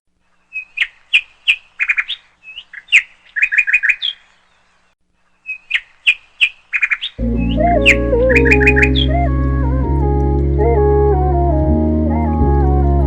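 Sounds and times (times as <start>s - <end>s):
bird singing: 0.3s - 9.4s.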